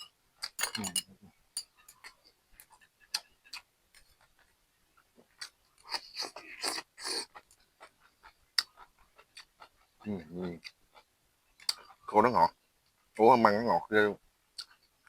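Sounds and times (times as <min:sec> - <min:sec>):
person chewing food: 0:01.7 - 0:12.1.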